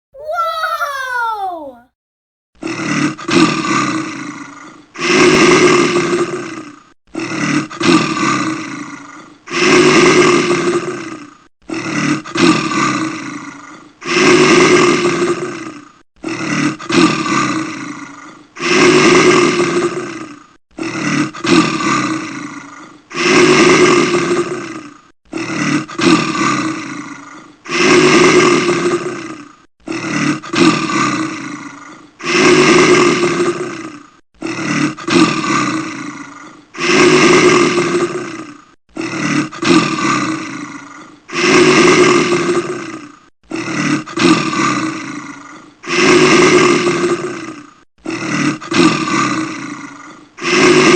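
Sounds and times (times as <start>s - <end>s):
bear roaring: 0.1s - 1.9s.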